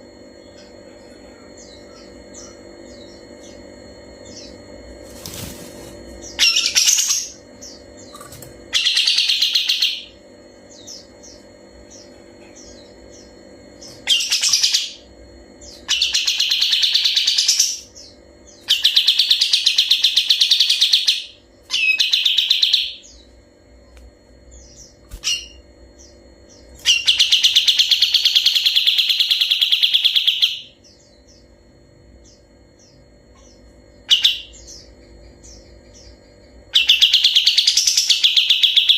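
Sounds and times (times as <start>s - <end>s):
faint bird chirps: 0.4s - 4.6s
songbird singing rapid trills: 0.4s - 4.6s, 6.2s - 23.4s, 24.4s - 31.6s, 32.2s - 38.9s.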